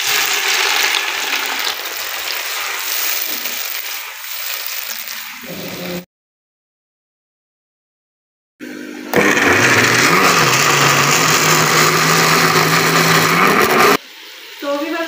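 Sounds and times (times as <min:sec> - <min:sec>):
tomatoes sizzling in hot oil: 0:00.0 - 0:06.0, 0:09.3 - 0:15.0.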